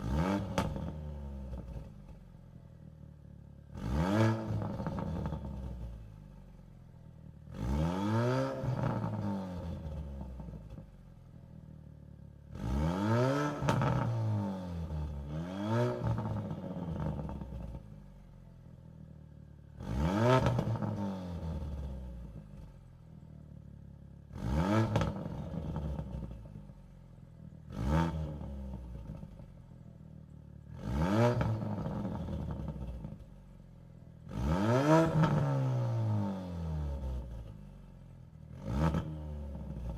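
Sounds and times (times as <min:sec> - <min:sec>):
car engine revving: 0:00.0 - 0:02.2, 0:03.6 - 0:10.8, 0:12.4 - 0:18.3, 0:19.6 - 0:22.7, 0:24.2 - 0:26.8, 0:27.4 - 0:29.5, 0:30.6 - 0:33.5, 0:34.2 - 0:37.8, 0:38.4 - 0:39.9.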